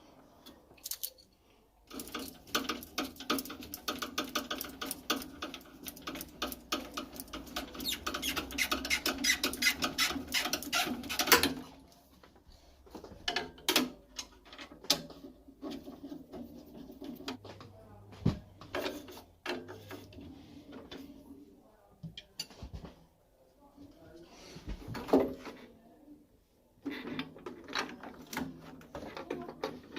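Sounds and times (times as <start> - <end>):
tools clicking and scraping: 0.4 - 11.7
scattered clicks and knocks: 1.9 - 11.7.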